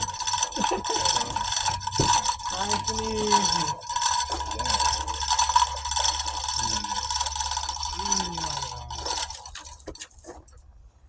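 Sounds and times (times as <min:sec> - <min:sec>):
mechanical ratcheting and rattling: 0:00.0 - 0:10.6.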